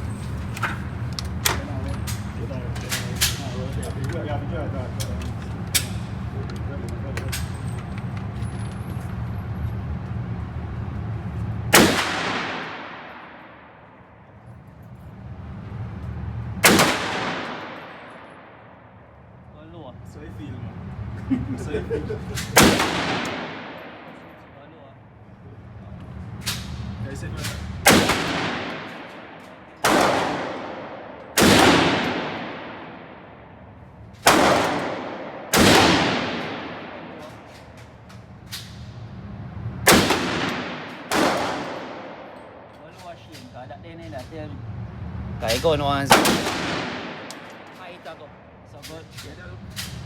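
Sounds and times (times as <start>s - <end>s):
gunshots with echoing decay: 11.7s - 14.2s, 16.6s - 19.2s, 22.3s - 24.6s, 26.4s - 38.1s, 39.8s - 42.8s, 45.5s - 48.6s.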